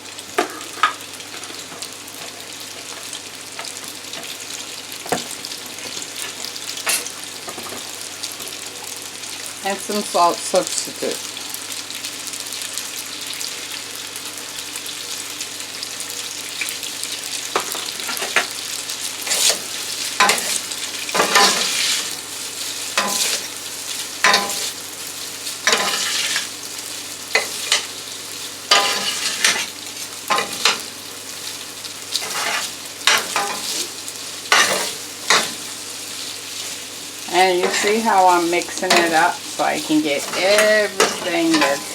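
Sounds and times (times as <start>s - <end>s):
pasta sizzling in frying pan: 0.0s - 41.9s
utensil scraping pan: 25.6s - 26.5s, 28.7s - 29.7s, 32.2s - 33.9s, 34.5s - 35.7s, 37.4s - 41.9s.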